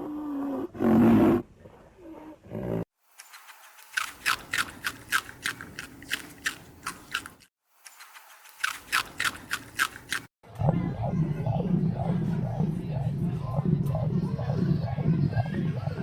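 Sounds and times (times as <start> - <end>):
animal chewing with crunching: 3.3 - 10.3.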